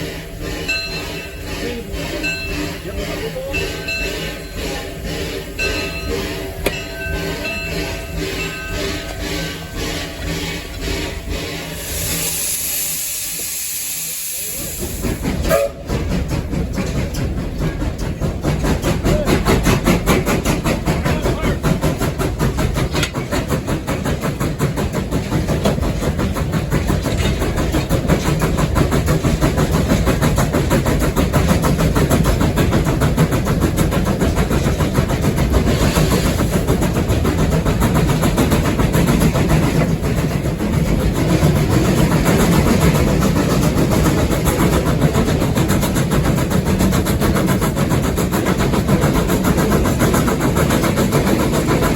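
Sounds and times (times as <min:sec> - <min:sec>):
steam hiss: 0:00.0 - 0:51.9
steam locomotive rhythmic exhaust: 0:00.0 - 0:51.9.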